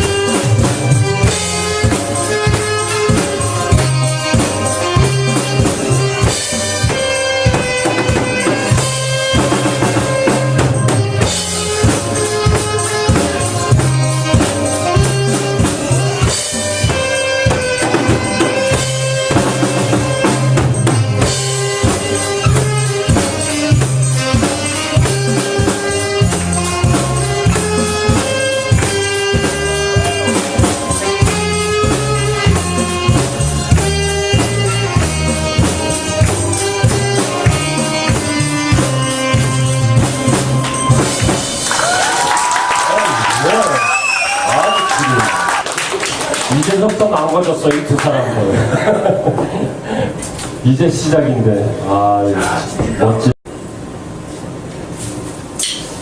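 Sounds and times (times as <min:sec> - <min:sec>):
saxophone melody: 0:00.0 - 0:42.1
bass line: 0:00.0 - 0:45.5
drum kit beat: 0:00.0 - 0:47.2.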